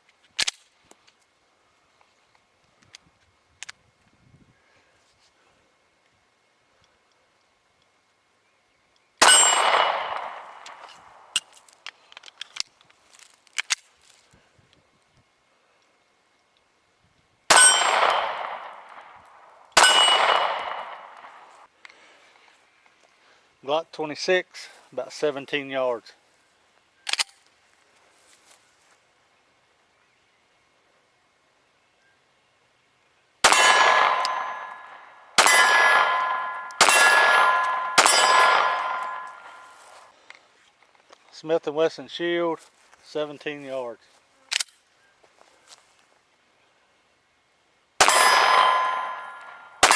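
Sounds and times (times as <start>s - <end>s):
metallic ringing of steel target: 9.2s - 11.2s, 17.5s - 21.6s, 33.4s - 39.9s, 48.0s - 49.9s
pistol shot echoing: 9.2s - 11.4s, 17.5s - 21.6s, 33.4s - 39.8s, 48.0s - 49.9s.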